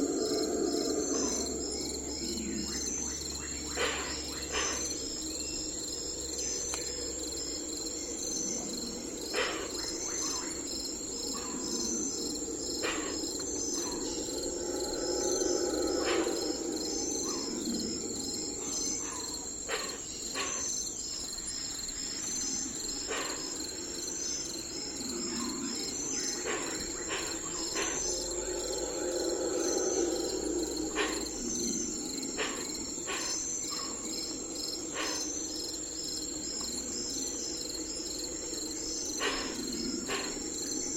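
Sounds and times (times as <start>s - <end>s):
crickets chirping: 0.0s - 40.9s
low murmur: 11.2s - 19.7s.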